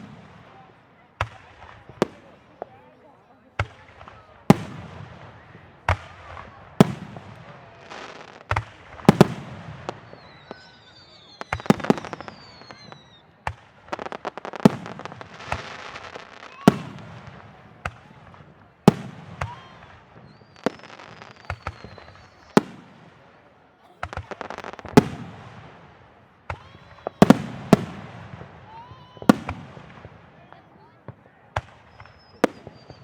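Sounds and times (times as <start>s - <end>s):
fireworks bursting with bangs: 0.0s - 33.0s
fireworks crackling: 0.0s - 33.0s
high gliding whistles: 10.0s - 13.3s.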